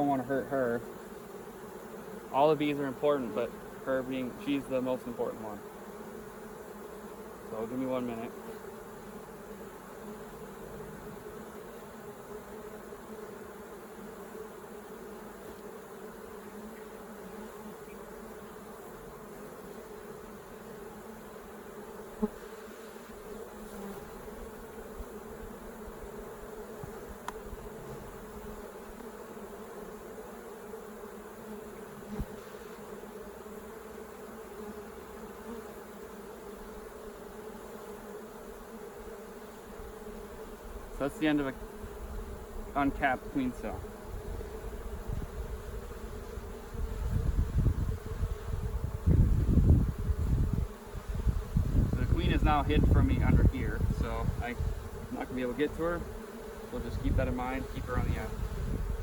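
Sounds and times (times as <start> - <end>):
honeybees buzzing: 0.0 - 59.0
faint clicks of hive frames: 16.4 - 19.6, 26.1 - 29.3.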